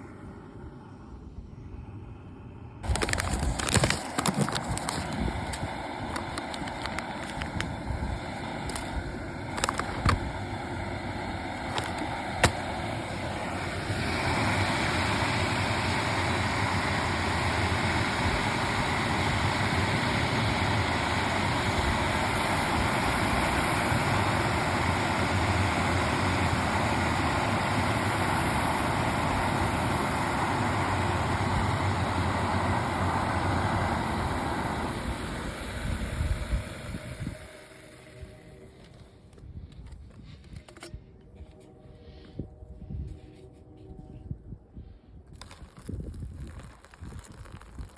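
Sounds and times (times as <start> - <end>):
gas burner rushing: 2.8 - 39.0.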